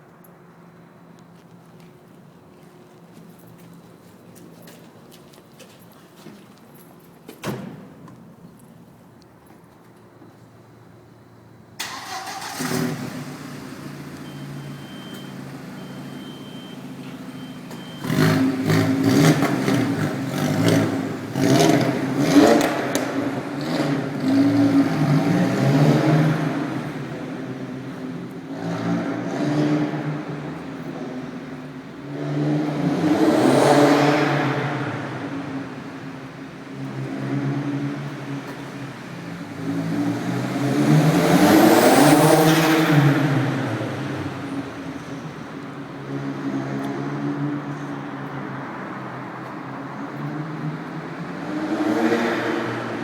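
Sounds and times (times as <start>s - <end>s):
car engine idling and revving: 11.2s - 53.0s.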